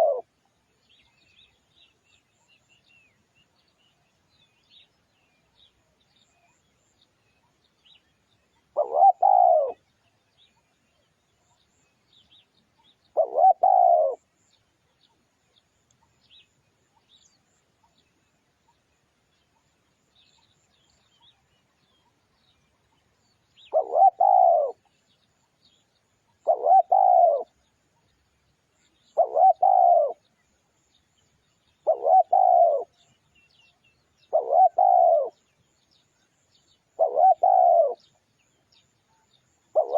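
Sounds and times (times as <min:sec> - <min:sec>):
dove cooing: 0:00.0 - 0:00.3, 0:08.7 - 0:09.8, 0:13.1 - 0:14.3, 0:23.6 - 0:24.9, 0:26.4 - 0:27.6, 0:29.1 - 0:30.3, 0:31.8 - 0:33.0, 0:34.3 - 0:35.4, 0:37.0 - 0:38.1.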